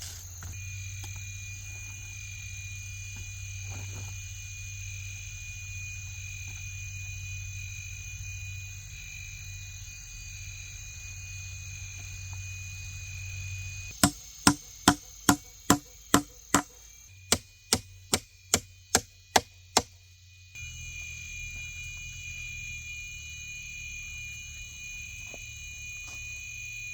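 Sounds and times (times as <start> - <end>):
insects droning: 0.0 - 26.9
blade chopping wood: 14.0 - 19.9.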